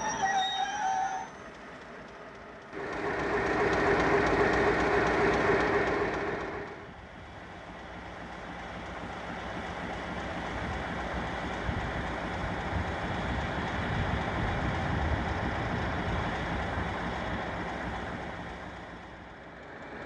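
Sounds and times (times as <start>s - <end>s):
wheels squealing on rails: 0.0s - 6.8s
train rumble: 0.0s - 20.0s.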